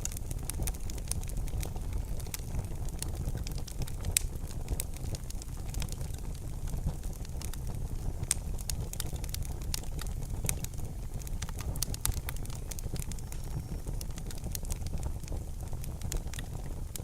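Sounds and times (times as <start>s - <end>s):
low rumble of flames: 0.0s - 17.0s
wood fire crackling: 0.0s - 17.0s.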